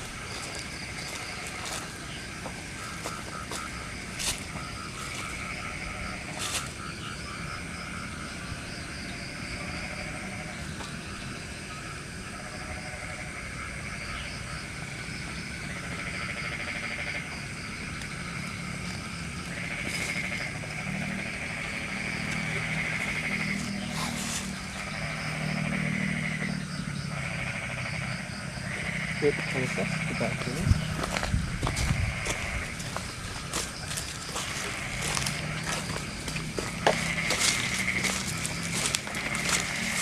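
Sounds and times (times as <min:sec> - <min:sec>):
frogs calling: 0:00.0 - 0:40.0
insects pulsing calls: 0:00.0 - 0:40.0.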